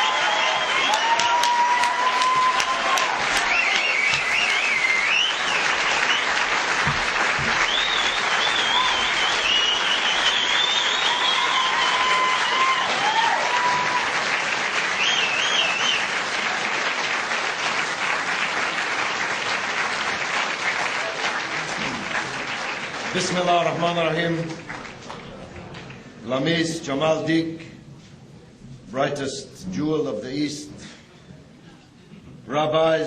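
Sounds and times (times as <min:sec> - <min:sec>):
large audience applauding: 0:00.0 - 0:26.2.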